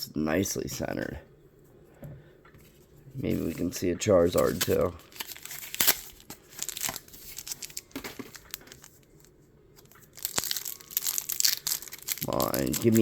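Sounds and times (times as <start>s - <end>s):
foil wrapper crinkling and tearing: 4.3s - 13.0s.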